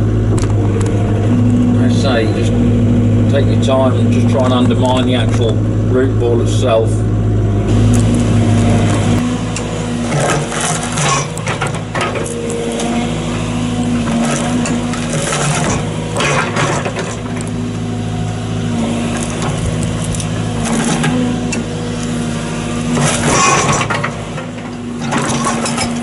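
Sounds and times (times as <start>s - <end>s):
excavator engine running: 0.0s - 26.0s
bucket scraping and cracking roots: 10.0s - 17.8s.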